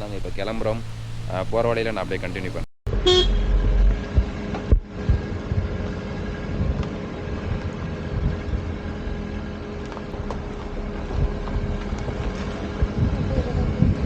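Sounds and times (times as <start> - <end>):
road and engine rumble: 0.0 - 14.0
wind gusts thudding: 3.6 - 14.0.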